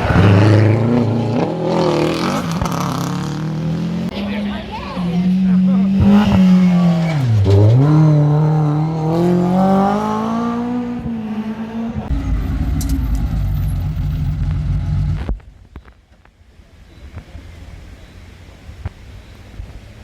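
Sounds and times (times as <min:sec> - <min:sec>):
rally car engine revving: 0:00.0 - 0:15.8.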